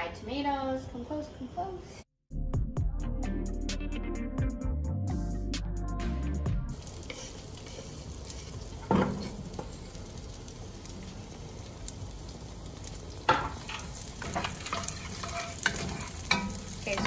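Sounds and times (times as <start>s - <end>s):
tomatoes sizzling in hot oil: 6.7s - 17.0s.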